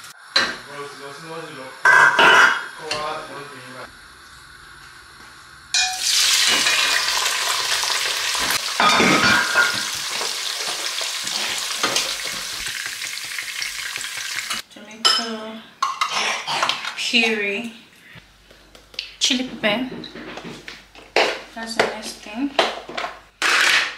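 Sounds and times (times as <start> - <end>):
onions sizzling in hot oil: 5.7 - 14.6.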